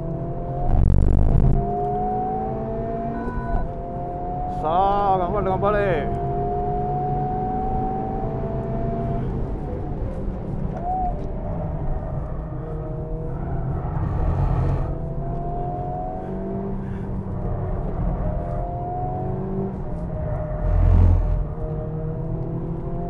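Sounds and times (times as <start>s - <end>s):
car engine pulling hard: 11.6s - 23.0s
loud low rumble: 20.1s - 21.6s.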